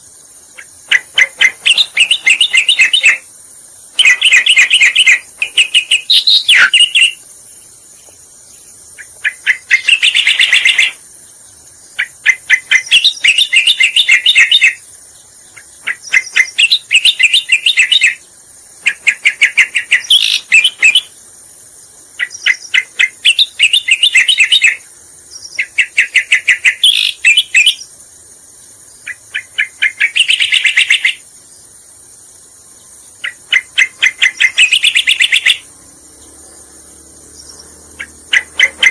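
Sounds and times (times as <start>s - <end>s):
bird chattering song: 0.0s - 28.0s, 28.8s - 31.8s, 32.7s - 38.9s
steady high hiss: 0.0s - 38.9s.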